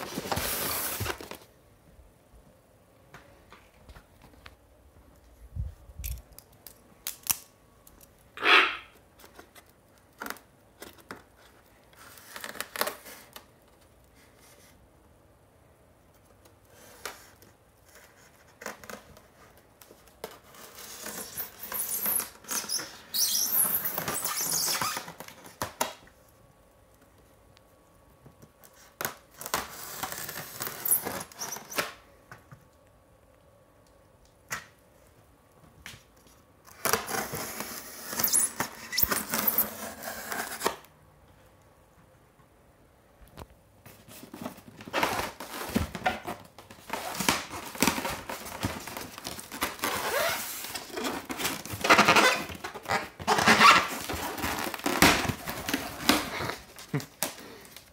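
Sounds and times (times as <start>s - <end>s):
plastic and foam crinkling: 0.0s - 1.8s, 3.4s - 14.8s, 16.1s - 32.0s, 36.0s - 40.8s, 43.4s - 57.9s.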